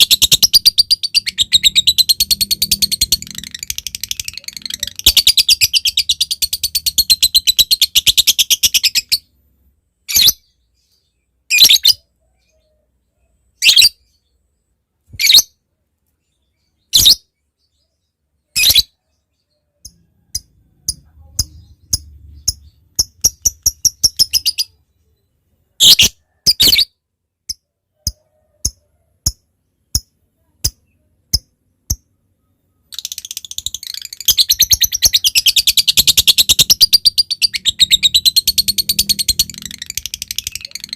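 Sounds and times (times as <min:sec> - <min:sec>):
lovebird chattering trill: 0:00.0 - 0:09.3, 0:19.8 - 0:24.8, 0:32.8 - 0:40.9.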